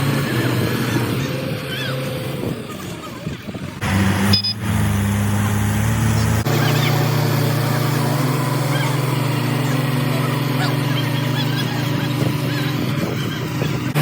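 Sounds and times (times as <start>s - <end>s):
tractor diesel engine running: 0.0s - 14.0s
high-pitched tone: 4.1s - 4.9s.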